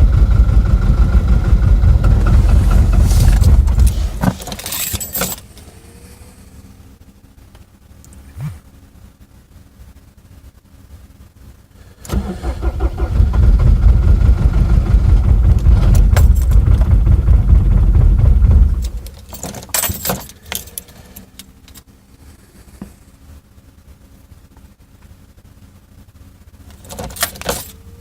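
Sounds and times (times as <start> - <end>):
diesel engine starting and running: 0.0 - 7.2, 11.8 - 22.7
sharp rattles: 0.3 - 5.7, 12.2 - 21.8, 26.6 - 27.8.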